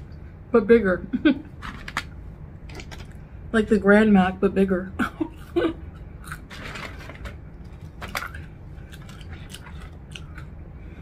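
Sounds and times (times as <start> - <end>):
crunchy chewing: 5.4 - 10.6.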